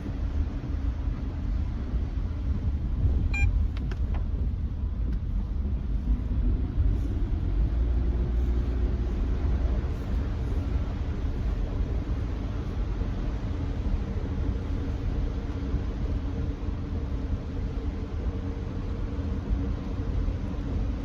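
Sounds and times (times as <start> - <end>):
low road rumble in car cabin: 0.0 - 21.0.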